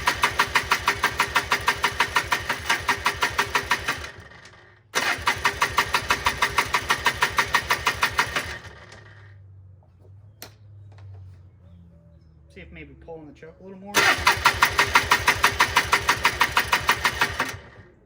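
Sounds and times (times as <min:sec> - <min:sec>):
atv engine cranking without firing: 0:00.0 - 0:09.6, 0:13.9 - 0:18.0.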